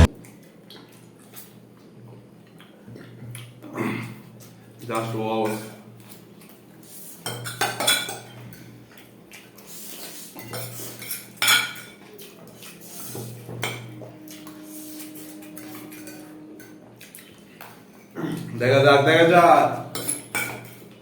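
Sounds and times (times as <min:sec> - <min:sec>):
cutlery clinking on plates: 0:07.2 - 0:08.7, 0:10.0 - 0:16.1, 0:19.9 - 0:21.0
steady hum: 0:12.8 - 0:21.0.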